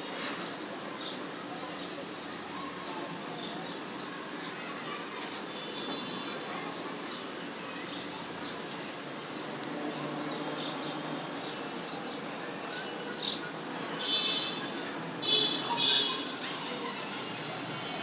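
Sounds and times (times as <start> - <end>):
sparrows chirping: 10.4 - 14.6, 15.2 - 17.5.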